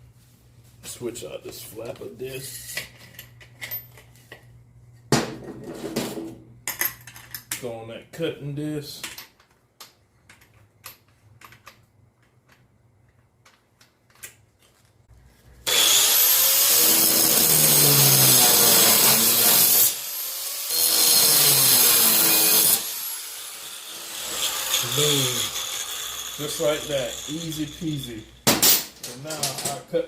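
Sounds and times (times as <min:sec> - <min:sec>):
angle grinder cutting steel: 0:15.6 - 0:28.4.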